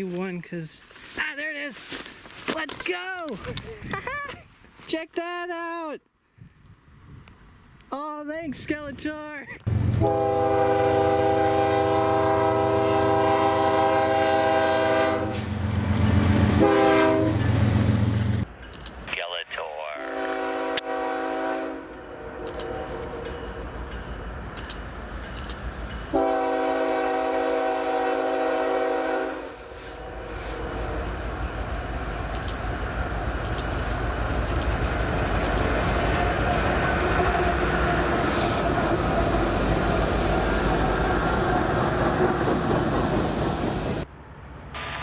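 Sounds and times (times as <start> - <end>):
train rumbling past: 9.7 - 19.2, 20.0 - 45.0
locomotive air horn blast: 10.0 - 15.6, 16.6 - 17.5, 20.0 - 22.9, 26.1 - 31.0.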